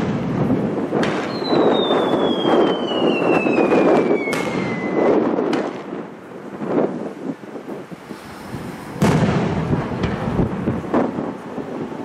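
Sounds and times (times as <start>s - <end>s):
firework shells bursting: 0.0s - 5.9s, 8.0s - 11.2s
steady rushing noise: 0.0s - 12.0s
falling firework whistle: 1.0s - 5.5s.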